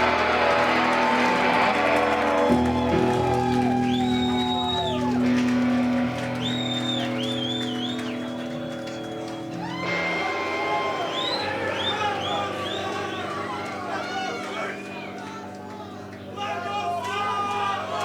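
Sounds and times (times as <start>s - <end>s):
held guitar chords: 0.0s - 16.4s.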